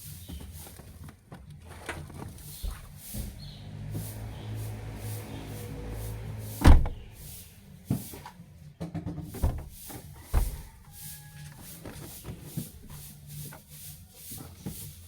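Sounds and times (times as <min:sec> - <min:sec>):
loud thump: 0:06.6 - 0:07.1, 0:09.4 - 0:10.7.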